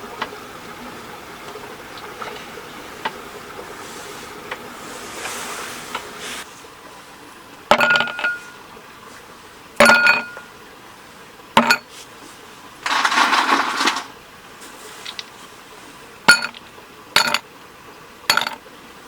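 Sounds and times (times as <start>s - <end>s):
camp tableware clinking: 7.7s - 8.6s, 9.8s - 10.5s, 11.6s - 11.9s, 12.8s - 14.1s, 16.3s - 16.6s, 17.2s - 17.4s, 18.3s - 18.6s.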